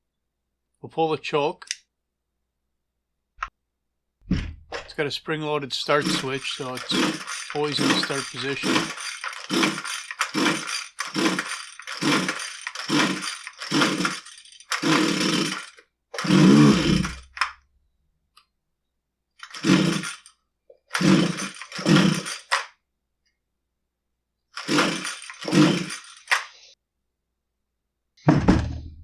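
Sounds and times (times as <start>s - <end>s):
recoil starter rope pulls: 5.9s - 17.5s, 19.4s - 22.7s, 24.6s - 26.7s
small engine turning over: 5.9s - 17.5s, 19.4s - 22.7s, 24.6s - 26.6s.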